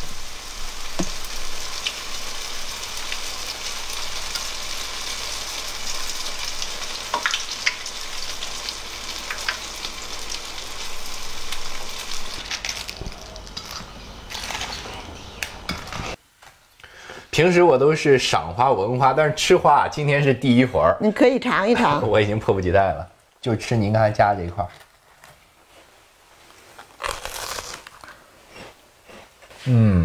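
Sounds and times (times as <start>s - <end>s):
battered petals sizzling in oil: 0.0s - 19.9s.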